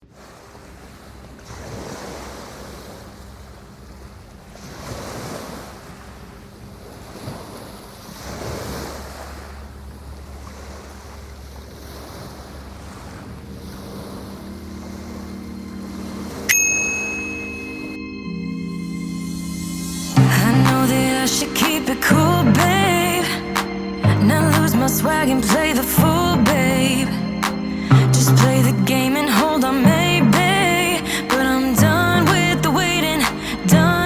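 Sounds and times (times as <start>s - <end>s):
wind: 0.0s - 34.0s
ocean surf washing in: 0.1s - 34.0s
low sustained music tones: 13.2s - 34.0s
ringing bell-like hit: 16.5s - 20.5s.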